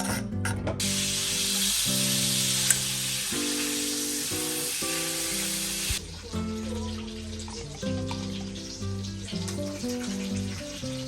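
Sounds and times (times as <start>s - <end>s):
background music of sustained notes: 0.0s - 11.0s
steady hiss: 0.8s - 6.1s.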